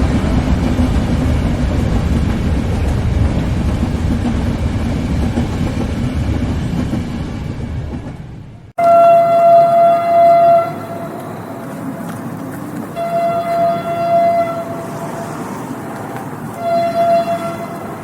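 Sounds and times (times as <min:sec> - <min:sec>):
moving train rumble: 0:00.0 - 0:18.0
train horn blasts: 0:08.8 - 0:11.2, 0:12.9 - 0:14.9, 0:16.6 - 0:18.0.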